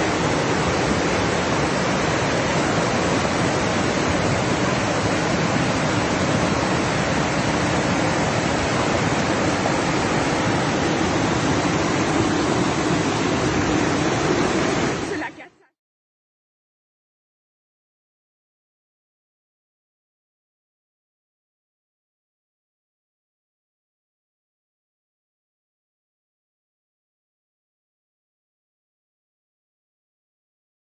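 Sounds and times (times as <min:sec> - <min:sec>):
floodwater rushing: 0:00.0 - 0:15.7.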